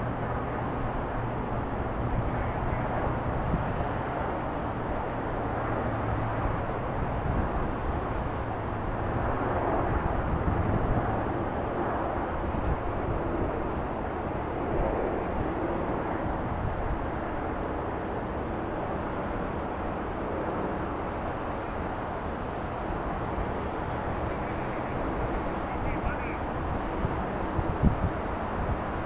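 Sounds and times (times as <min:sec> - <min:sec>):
low outdoor rumble: 0:00.0 - 0:06.8.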